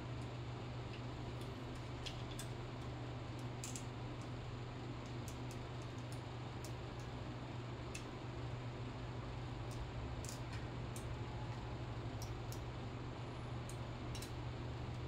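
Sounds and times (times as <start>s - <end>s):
steady low hum: 0.0s - 15.0s
faint clicks and ticks: 5.0s - 7.2s, 7.8s - 8.2s, 13.6s - 15.0s.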